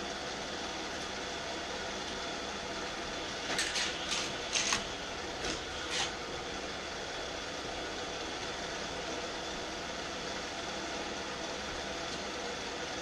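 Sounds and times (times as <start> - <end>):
toy cars clacking on track: 3.5 - 4.8.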